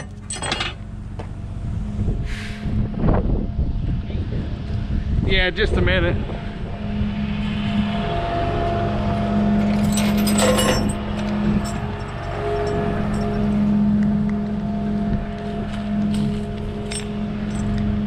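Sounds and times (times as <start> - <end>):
metallic clinks rattle: 0.0 - 0.8, 9.8 - 11.0, 11.6 - 13.4, 16.1 - 17.8.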